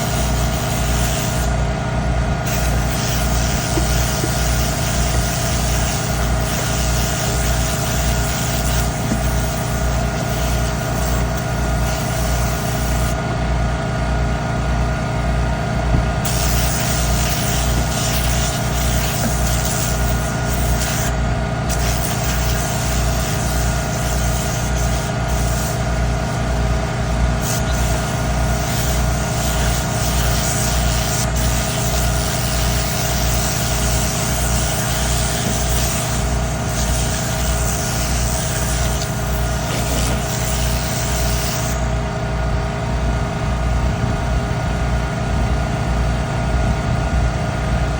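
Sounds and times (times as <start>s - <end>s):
low pulsing motor: 0.0s - 47.9s
rushing air hiss: 2.4s - 12.1s, 32.7s - 41.9s.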